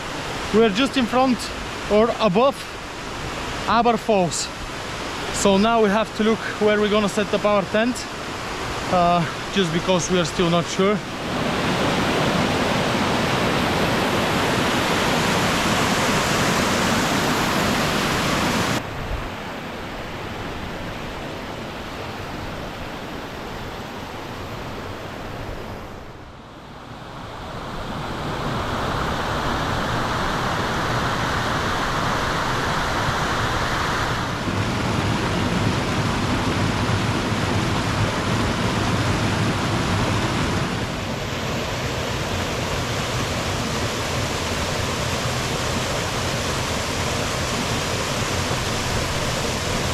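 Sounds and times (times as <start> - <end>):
waterfall rushing: 0.0 - 18.8, 28.6 - 49.9.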